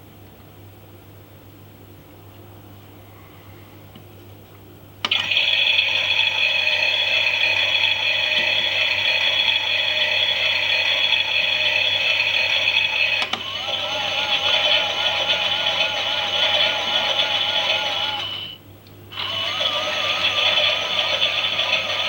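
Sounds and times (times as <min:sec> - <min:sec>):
toy motor whining with gear chatter: 0:05.1 - 0:18.6, 0:19.2 - 0:22.0.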